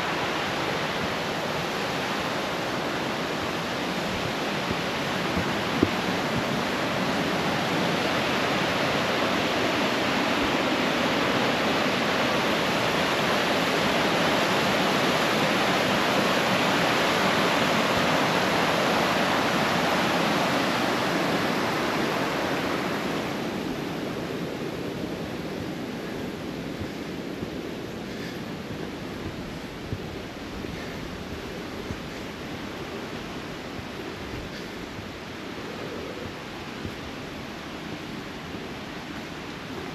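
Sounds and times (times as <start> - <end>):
water rushing over a waterfall: 0.0 - 39.9.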